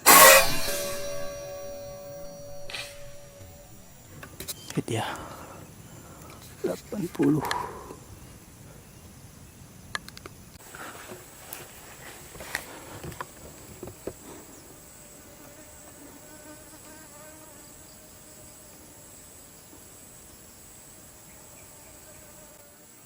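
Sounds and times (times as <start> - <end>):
insects high-pitched drone: 0.0 - 10.0.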